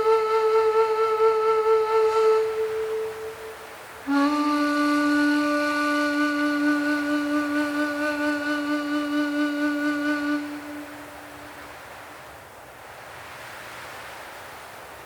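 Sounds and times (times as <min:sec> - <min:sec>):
low flute-like note: 0:00.0 - 0:11.6.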